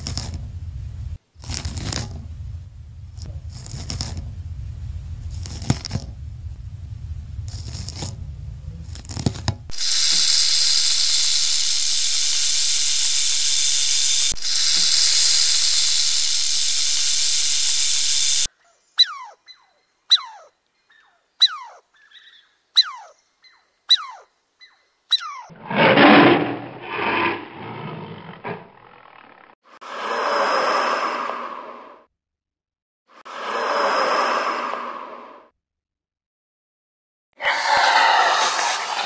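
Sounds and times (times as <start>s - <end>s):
snake hissing: 9.7s - 18.5s, 37.4s - 39.0s
high downward-sweeping calls: 9.7s - 25.5s.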